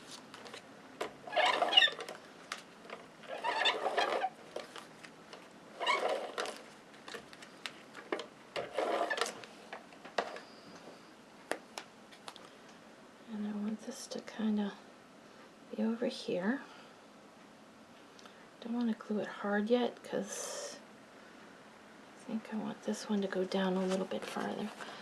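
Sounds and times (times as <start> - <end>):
tape runner ratcheting rasp: 1.3 - 2.2, 3.3 - 4.4, 5.8 - 6.6.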